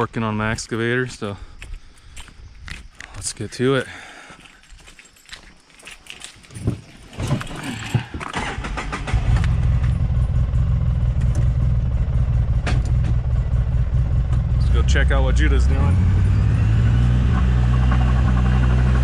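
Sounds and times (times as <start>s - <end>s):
vehicle engine starting and idling: 7.6s - 19.0s.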